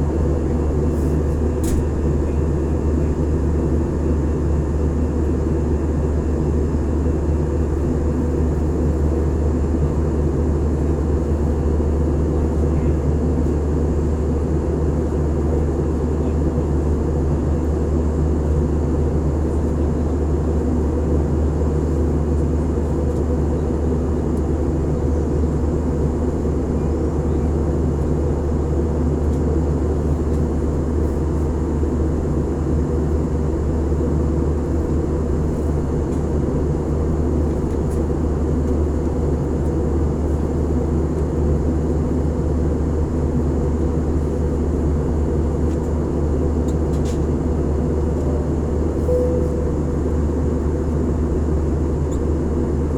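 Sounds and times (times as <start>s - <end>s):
airliner cabin engine drone: 0.0s - 52.9s.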